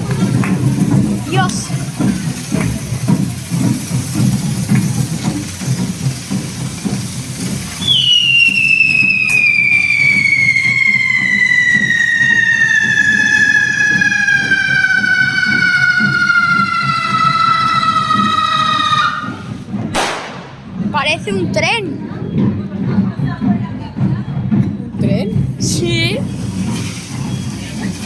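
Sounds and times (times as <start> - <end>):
whistling firecracker: 1.4 - 20.8, 26.3 - 28.0.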